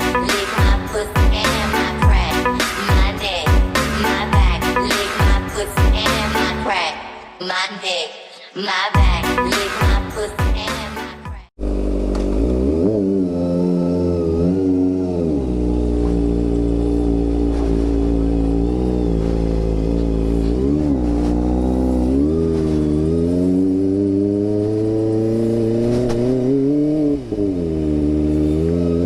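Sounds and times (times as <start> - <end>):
motorcycle engine revving: 11.5 - 29.0.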